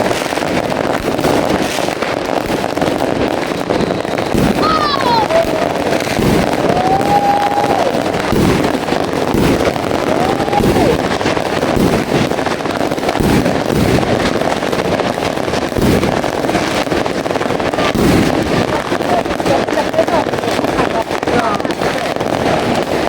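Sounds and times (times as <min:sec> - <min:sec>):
fireworks bangs and crackles: 0:00.0 - 0:23.0
crowd voices calling out: 0:04.4 - 0:08.1.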